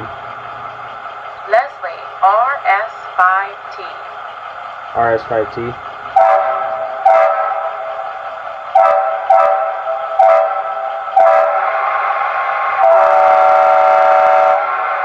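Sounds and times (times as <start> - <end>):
air horn chord blasts: 6.2 - 8.0, 8.7 - 11.8, 12.8 - 15.0.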